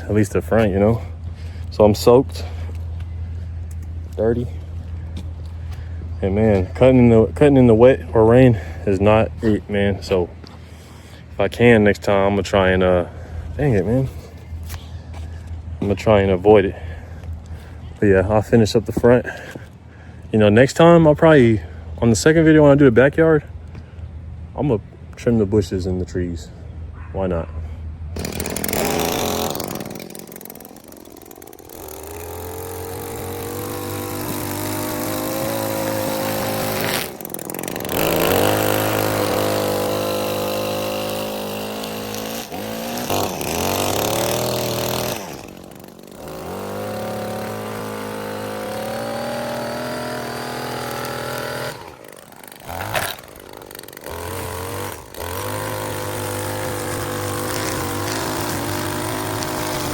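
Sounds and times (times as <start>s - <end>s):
small gas engine revving: 0.0s - 4.7s, 5.6s - 15.0s, 28.2s - 59.9s.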